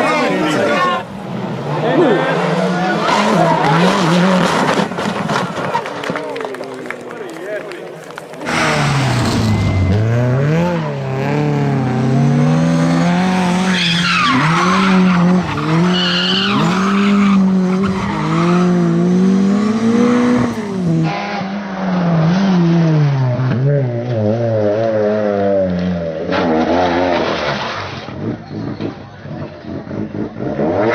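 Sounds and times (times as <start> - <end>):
rally car engine revving: 0.0 - 6.5, 8.0 - 30.9
tyres on gravel: 4.1 - 10.6.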